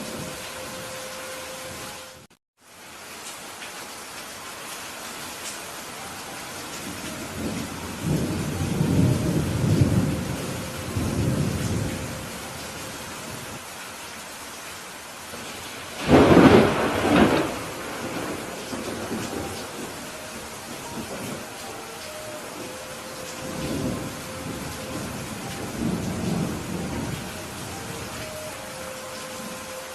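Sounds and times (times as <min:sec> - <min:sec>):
heavy rain: 0:00.0 - 0:29.9
thunder rumbling: 0:06.8 - 0:13.6, 0:15.4 - 0:29.6
loud thunderclap: 0:16.0 - 0:19.9.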